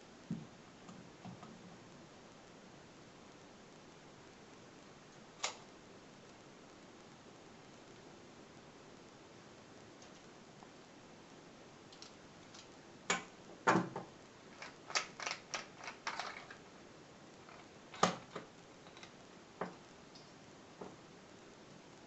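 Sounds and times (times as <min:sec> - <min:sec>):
sharp clicks and light knocks: 0:11.9 - 0:16.6, 0:17.4 - 0:21.0.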